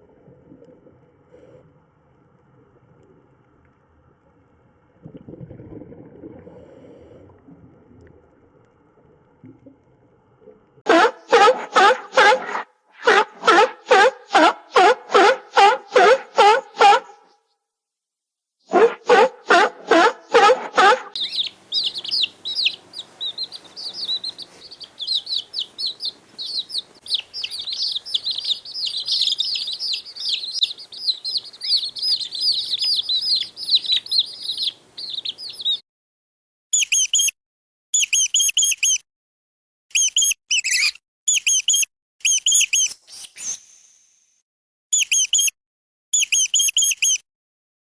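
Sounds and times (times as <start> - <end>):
quick repeated chirps: 21.2 - 35.8
small birds chirping: 21.2 - 35.8.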